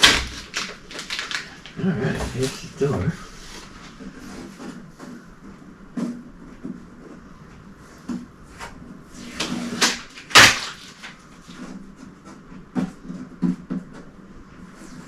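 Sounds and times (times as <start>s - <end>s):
packaging rustling: 0.0s - 4.1s, 9.4s - 11.7s.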